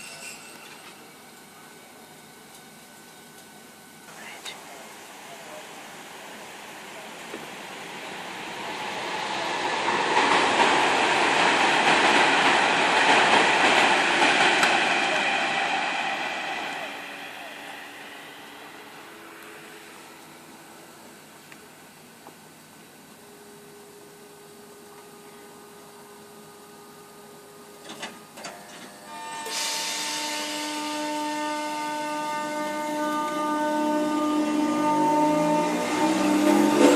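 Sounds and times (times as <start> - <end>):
train rumble and wheel noise: 0.0 - 36.9
steady whining tones: 4.7 - 21.6.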